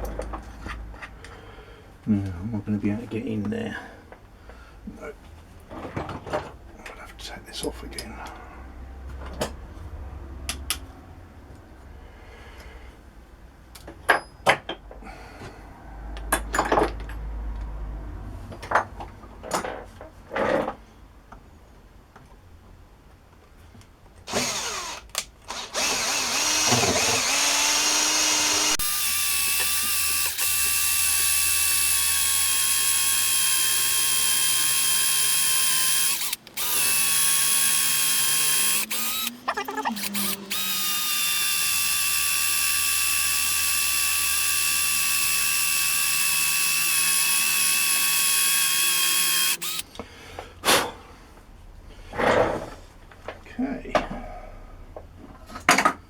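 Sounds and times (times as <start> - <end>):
electric drill whining: 24.3 - 49.8.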